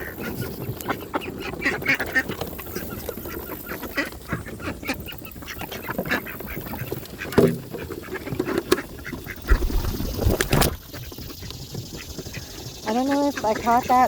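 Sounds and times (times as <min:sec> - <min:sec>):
birds quacking: 0:00.0 - 0:14.0
bird wings flapping: 0:08.0 - 0:12.8.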